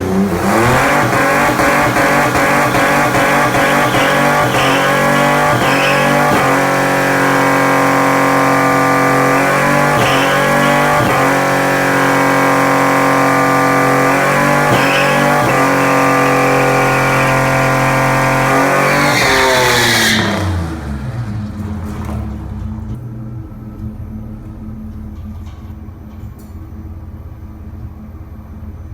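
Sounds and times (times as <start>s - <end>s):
car engine revving high: 0.0s - 22.9s.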